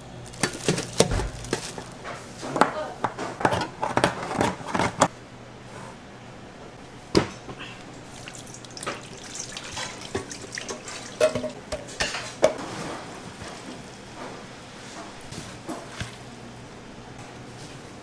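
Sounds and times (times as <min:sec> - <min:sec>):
water running: 0:07.9 - 0:12.5
dishes and utensils clinking: 0:08.3 - 0:13.0.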